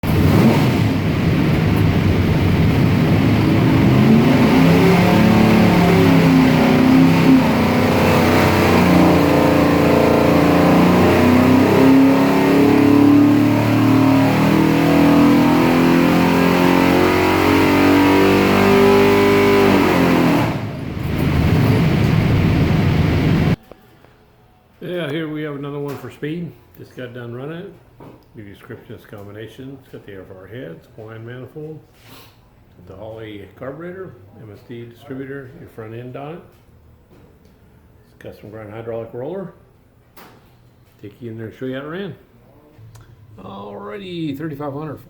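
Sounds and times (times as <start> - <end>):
engine revving under load: 0.0 - 23.6.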